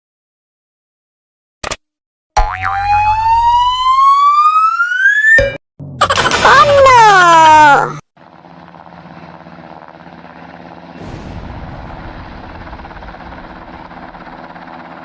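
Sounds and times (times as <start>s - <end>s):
droning hum with low tones: 8.2s - 15.0s.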